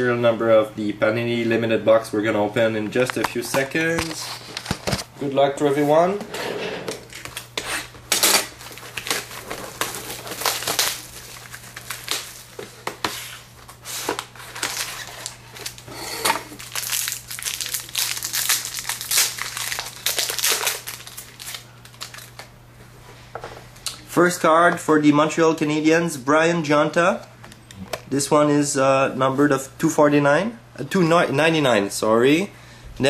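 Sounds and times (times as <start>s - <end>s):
plastic wrapping crinkling: 7.0s - 22.5s.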